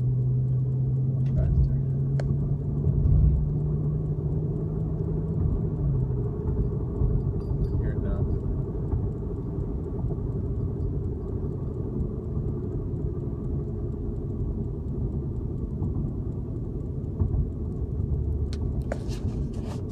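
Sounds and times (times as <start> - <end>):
car cabin road rumble: 0.0 - 19.9
rhythmic tyre womping: 0.0 - 19.9.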